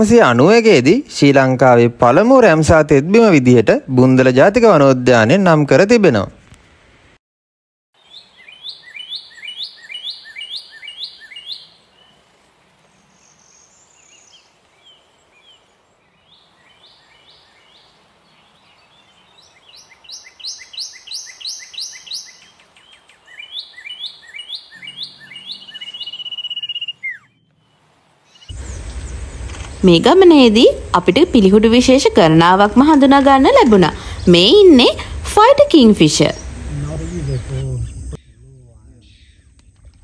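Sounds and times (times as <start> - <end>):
birds calling: 8.0 - 40.0
long steady whistle: 26.1 - 27.1.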